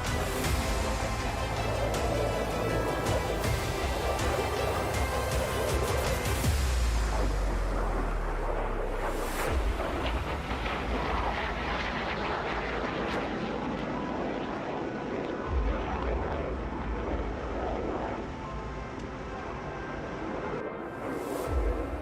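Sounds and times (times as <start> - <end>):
jet engine roaring: 0.0 - 22.0.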